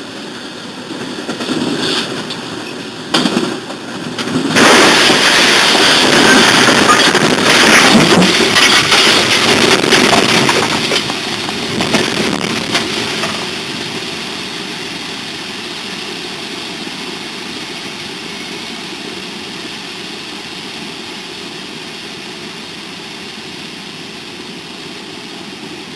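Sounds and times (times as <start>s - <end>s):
train collision clattering and banging: 0.2s - 14.7s.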